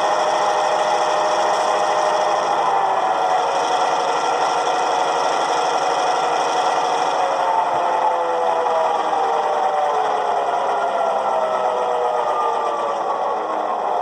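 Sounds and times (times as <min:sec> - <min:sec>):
diesel engine sound through small speaker: 0:00.0 - 0:14.0.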